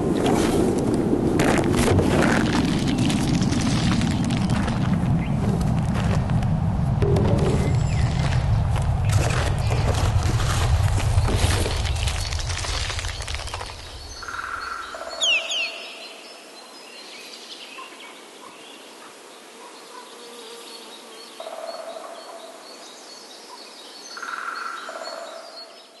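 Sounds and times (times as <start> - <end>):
birds calling: 11.1 - 16.5
two-note bird calls: 15.2 - 16.1.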